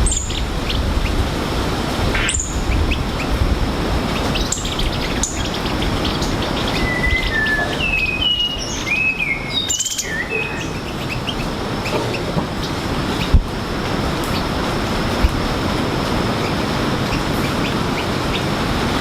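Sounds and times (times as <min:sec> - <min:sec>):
songbirds whistling: 0:00.0 - 0:01.2, 0:02.1 - 0:03.4, 0:04.0 - 0:13.4.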